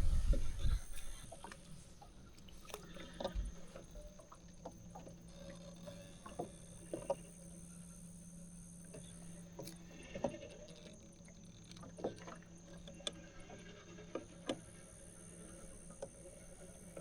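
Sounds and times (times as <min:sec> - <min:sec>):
low rumble on microphone: 0:00.0 - 0:01.4
steady low hum: 0:00.0 - 0:17.0
faint clicks and drips: 0:08.8 - 0:17.0.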